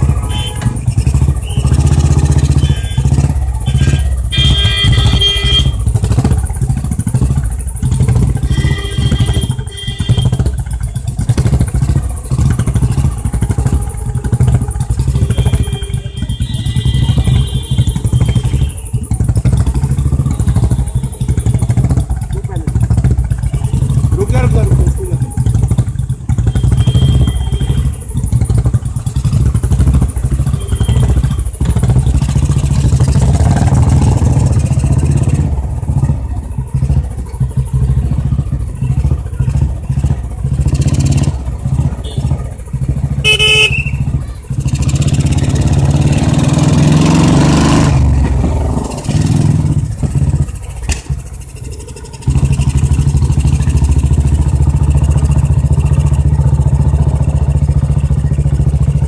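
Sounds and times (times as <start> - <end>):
motorcycle horn blast: 0.0 - 6.6, 8.3 - 10.8, 14.8 - 21.4, 26.3 - 28.1, 30.2 - 34.3, 41.7 - 44.2
motorcycle engine revving: 0.0 - 59.0.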